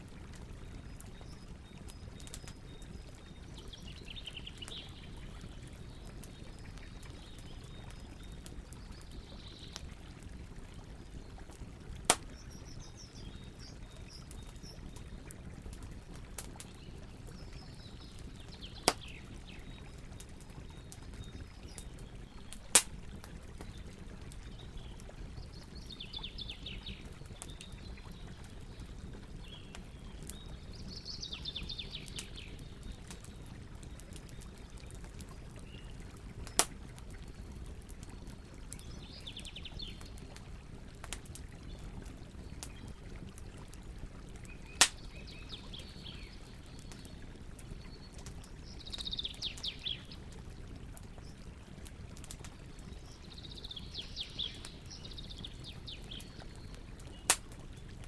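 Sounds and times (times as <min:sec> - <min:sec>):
campfire crackling: 0:00.0 - 0:58.0
sharp pops from fire: 0:12.0 - 0:12.8, 0:18.7 - 0:19.2, 0:22.5 - 0:23.7, 0:36.4 - 0:36.9, 0:44.7 - 0:45.2, 0:57.1 - 0:57.6.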